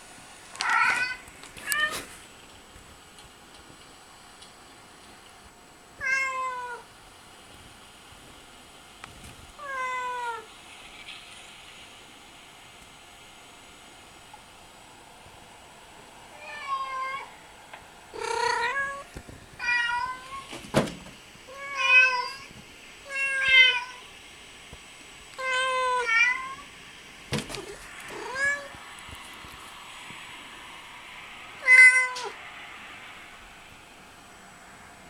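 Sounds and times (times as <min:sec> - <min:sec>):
cat meowing: 0:00.6 - 0:02.1, 0:06.0 - 0:06.8, 0:18.2 - 0:20.5, 0:21.5 - 0:22.5, 0:23.1 - 0:24.0, 0:27.6 - 0:28.8, 0:31.6 - 0:32.4.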